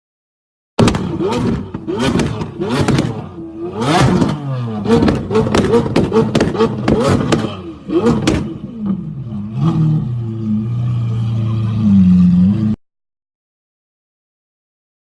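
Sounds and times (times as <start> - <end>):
supercar exhaust crackling pops: 0.8 - 8.6.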